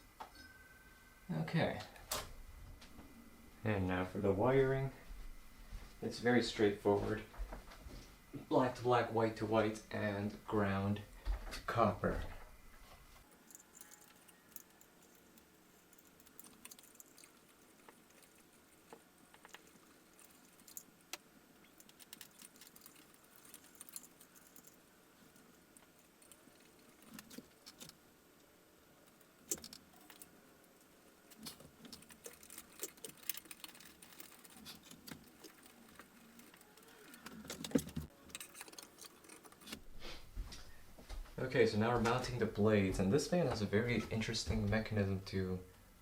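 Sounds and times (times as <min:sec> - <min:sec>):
light metallic jingling: 0:13.3 - 0:28.0, 0:29.1 - 0:39.8.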